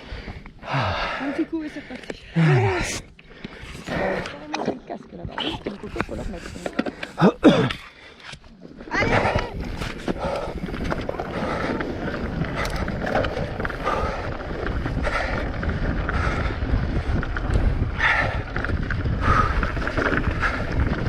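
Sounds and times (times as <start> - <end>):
bike tyres and frame rattling: 5.6 - 21.0
wind buffeting microphone: 8.9 - 21.0.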